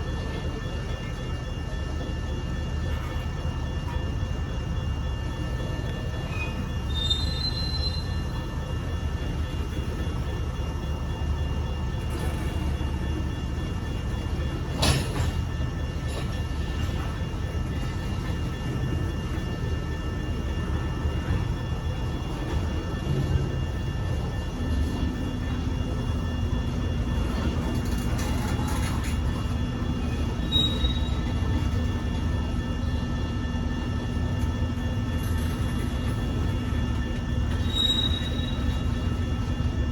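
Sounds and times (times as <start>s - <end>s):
freight train cars rumbling: 0.0s - 39.9s
high-pitched wheel squeal: 6.3s - 8.3s, 30.5s - 31.4s, 37.5s - 38.9s.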